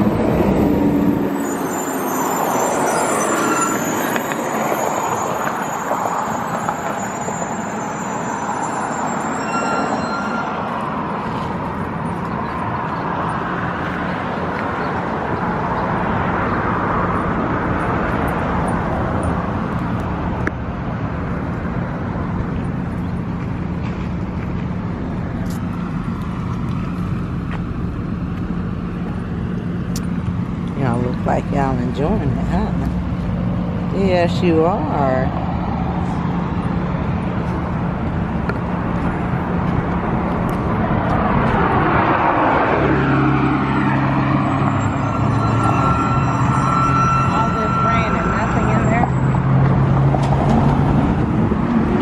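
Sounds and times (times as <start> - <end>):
passing vehicles: 0.0 - 52.0.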